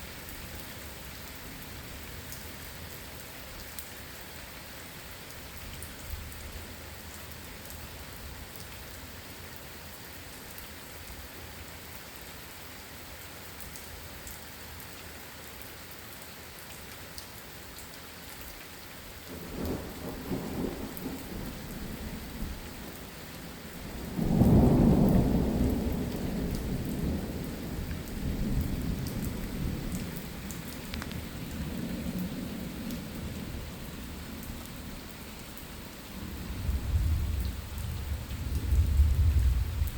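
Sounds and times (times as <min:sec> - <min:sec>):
steady rain falling: 0:00.0 - 0:39.9
thunder rumbling: 0:19.4 - 0:22.8, 0:23.7 - 0:35.0, 0:36.2 - 0:39.9.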